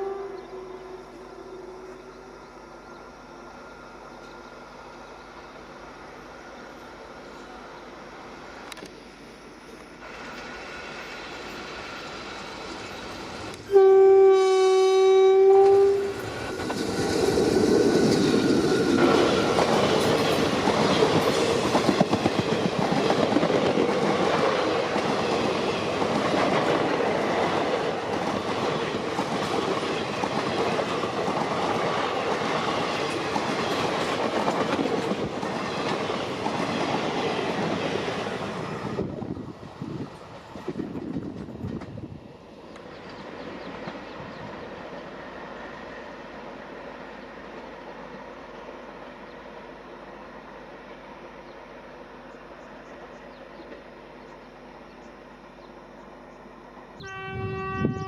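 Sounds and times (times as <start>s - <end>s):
electric locomotive horn blast: 0.0s - 3.0s, 13.5s - 16.4s, 57.0s - 58.0s
train wheels clattering over rail joints: 16.1s - 38.8s.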